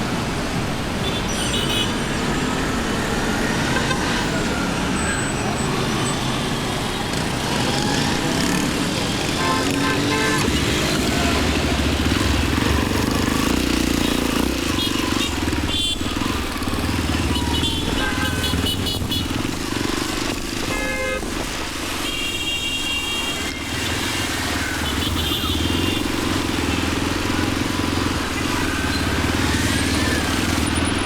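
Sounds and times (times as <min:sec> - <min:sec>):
road and wind noise: 0:00.0 - 0:31.0
motorcycle engine running: 0:07.1 - 0:21.6, 0:23.6 - 0:31.0.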